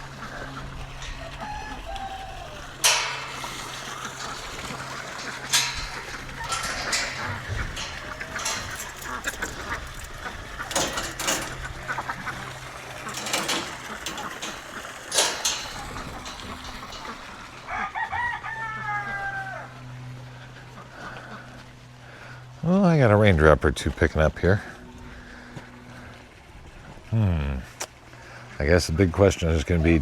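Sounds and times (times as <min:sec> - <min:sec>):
chickens clucking: 0:00.0 - 0:22.4
rooster crowing: 0:01.0 - 0:02.8, 0:06.0 - 0:08.2, 0:17.6 - 0:20.0
sharp knocks and clicks: 0:13.0 - 0:17.4.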